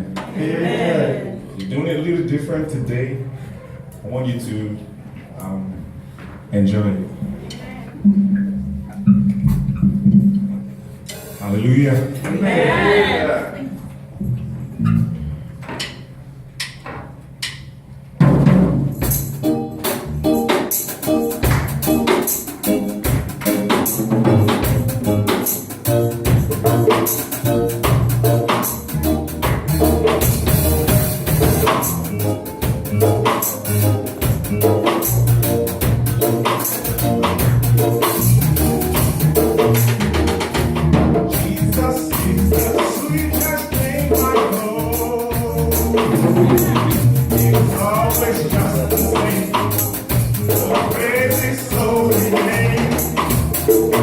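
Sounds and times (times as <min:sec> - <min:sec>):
drums: 0:07.2 - 0:12.7, 0:14.0 - 0:54.0
upbeat worship music: 0:19.0 - 0:54.0
voices singing: 0:41.4 - 0:54.0.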